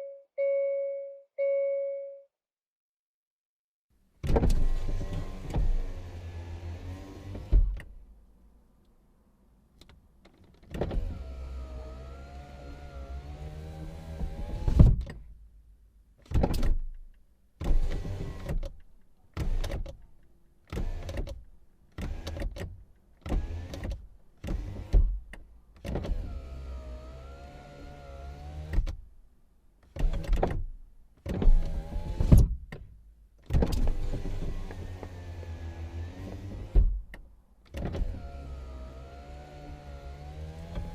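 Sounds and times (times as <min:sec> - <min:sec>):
power window motor whining: 0:04.4 - 0:07.8, 0:10.8 - 0:14.8, 0:33.8 - 0:37.0, 0:37.8 - 0:40.9.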